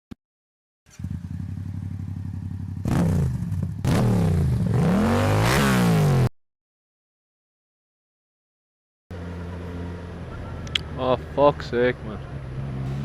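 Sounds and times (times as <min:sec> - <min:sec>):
motorcycle engine revving: 0:00.9 - 0:06.3, 0:12.2 - 0:13.0.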